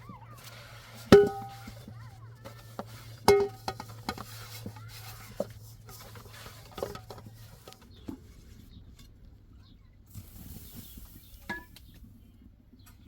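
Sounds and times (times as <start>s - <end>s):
metal pot clanking: 1.0s - 8.2s
cookware knocks and clicks: 1.1s - 1.7s, 3.2s - 4.2s.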